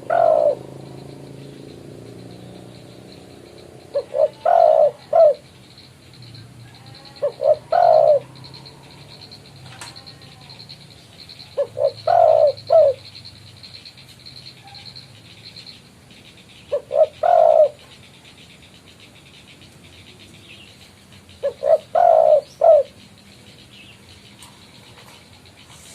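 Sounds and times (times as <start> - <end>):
dove cooing: 0.0 - 5.6, 6.6 - 13.1, 16.6 - 18.0, 21.4 - 23.0
high insect trill: 0.0 - 25.9.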